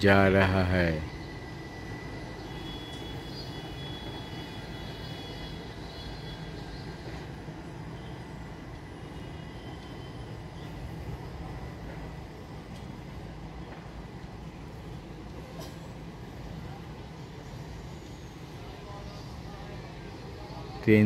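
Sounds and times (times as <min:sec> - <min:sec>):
train wheels rumbling on rails: 0:00.0 - 0:20.9
faint high ringing tone: 0:01.0 - 0:10.8.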